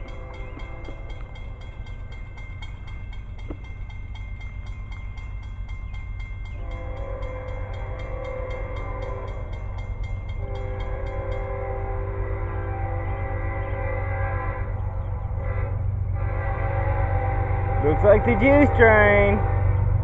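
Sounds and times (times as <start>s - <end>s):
train horn chord: 0.0s - 1.7s, 6.5s - 20.0s
train rumble: 0.0s - 20.0s.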